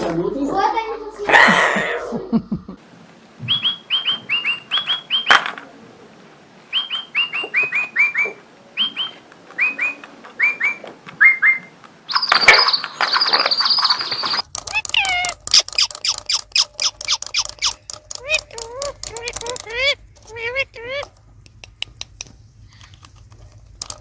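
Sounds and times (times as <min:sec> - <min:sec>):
parrot whistling: 0:03.5 - 0:05.3, 0:06.7 - 0:12.8
shrill parrot call: 0:06.7 - 0:14.4.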